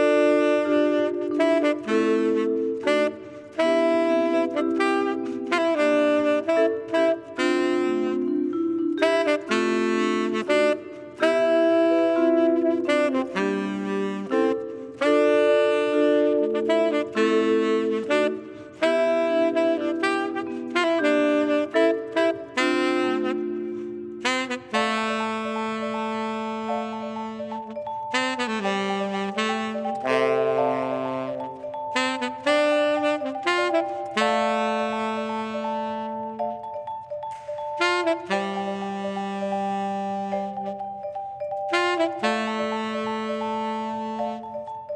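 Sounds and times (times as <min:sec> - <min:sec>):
jazz saxophone melody: 0:00.0 - 0:44.9.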